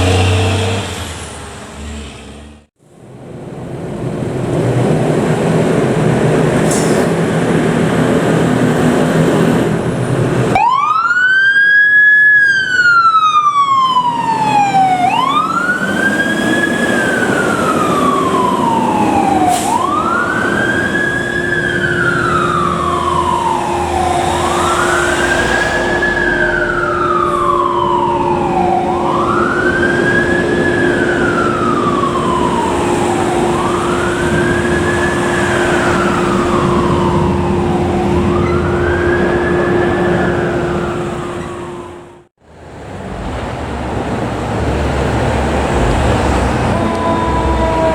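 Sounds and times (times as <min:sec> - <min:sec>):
fire truck siren wailing: 0:07.8 - 0:42.3, 0:44.4 - 0:47.9
vehicle rumble: 0:13.6 - 0:47.9.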